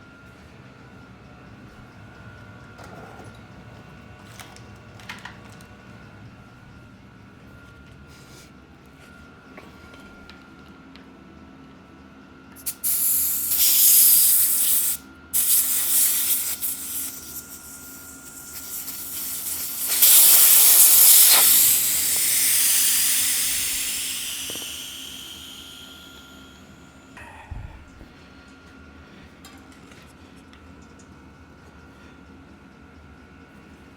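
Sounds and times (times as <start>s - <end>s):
air hissing from tire valve: 12.6s - 26.8s.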